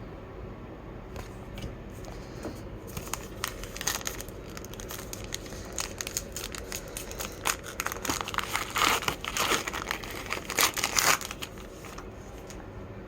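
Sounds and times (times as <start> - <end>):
wrapper crinkling and tearing: 2.9 - 12.6.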